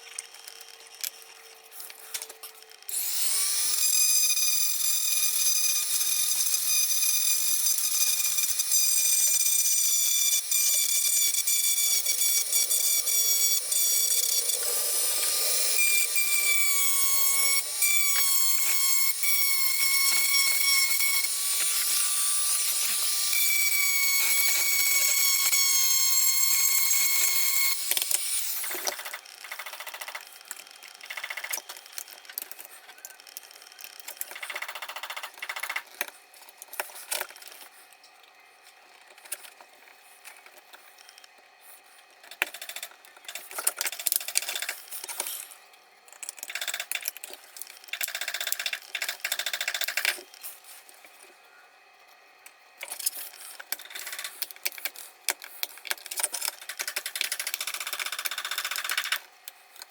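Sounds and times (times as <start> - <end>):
rotary tool whining: 0.0 - 37.8.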